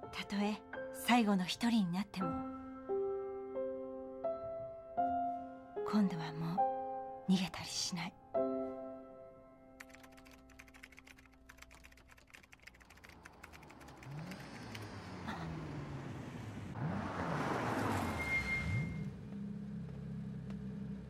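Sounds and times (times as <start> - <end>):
keyboard typing: 9.8 - 15.0
car engine revving: 12.9 - 21.0.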